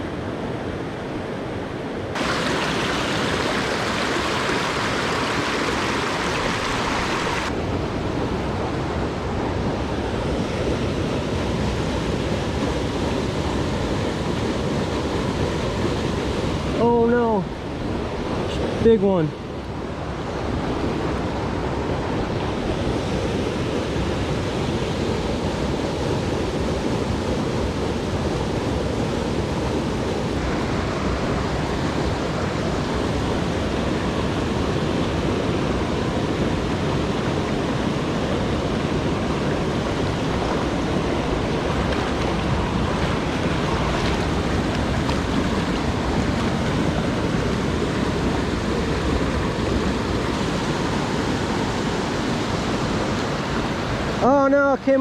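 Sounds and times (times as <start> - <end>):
creek flowing over rocks: 2.2 - 7.6, 40.1 - 55.0.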